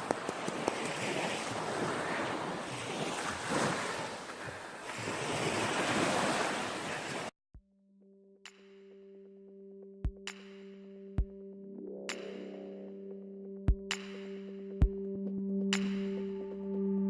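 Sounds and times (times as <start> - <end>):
sea waves washing: 0.0 - 7.3.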